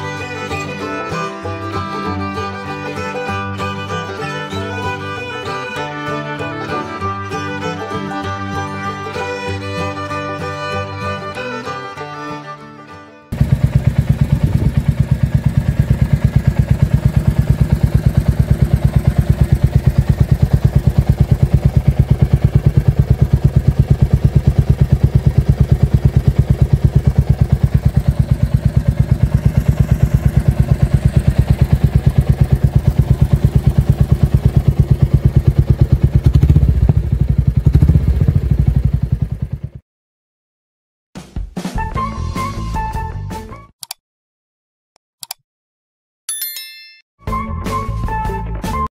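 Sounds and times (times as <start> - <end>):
motorcycle engine exhaust pulses: 13.4 - 39.8.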